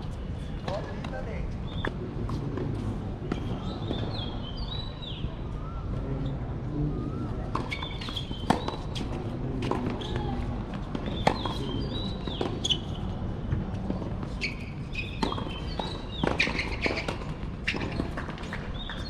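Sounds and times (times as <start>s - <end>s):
shoe squeaks on court: 7.6s - 10.4s, 11.0s - 13.1s, 14.2s - 19.0s
rackets striking tennis ball: 15.0s - 19.0s.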